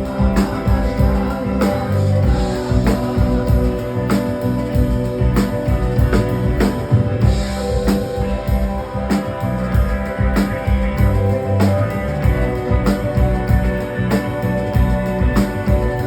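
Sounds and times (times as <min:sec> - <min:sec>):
drum kit steady beat: 0:00.0 - 0:16.0
sustained guitar and bass: 0:00.0 - 0:16.0.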